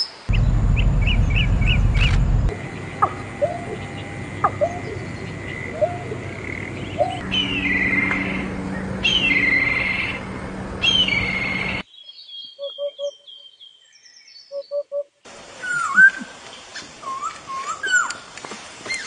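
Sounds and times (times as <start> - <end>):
noisy background: 0.3 - 11.8
descending whinnying whistled bird calls: 6.9 - 10.2, 10.8 - 14.8.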